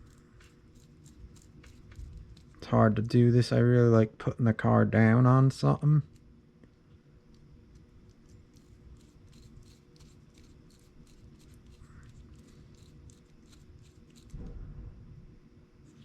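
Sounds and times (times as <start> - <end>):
small scratching and clicking: 0.0 - 2.6, 6.0 - 14.6.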